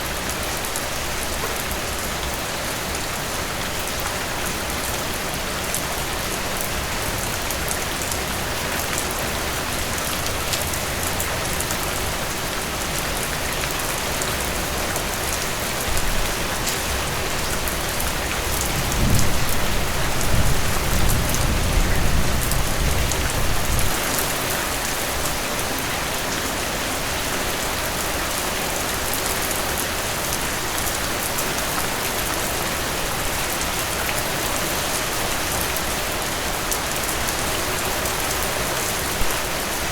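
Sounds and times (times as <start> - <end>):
heavy rain falling: 0.0 - 39.9
thunder rumbling: 18.5 - 24.1.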